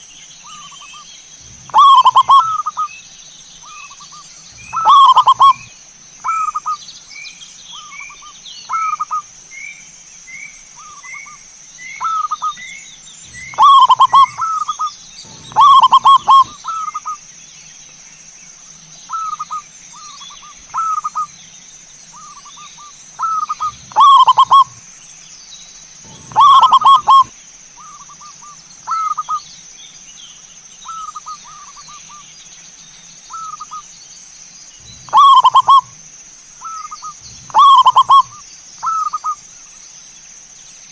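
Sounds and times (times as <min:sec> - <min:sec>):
loud bird calls: 0:00.0 - 0:40.2
doves cooing: 0:00.5 - 0:02.9, 0:03.7 - 0:06.8, 0:13.2 - 0:17.2, 0:19.1 - 0:21.3, 0:22.2 - 0:24.9, 0:26.0 - 0:29.4, 0:34.8 - 0:36.0, 0:36.6 - 0:39.4.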